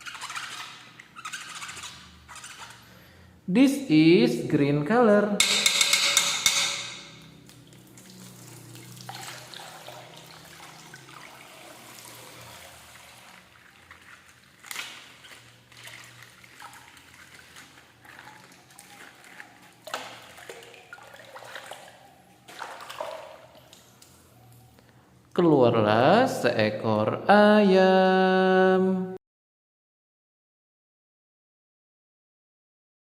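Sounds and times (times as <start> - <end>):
liquid trickling and dripping: 7.1 - 24.8.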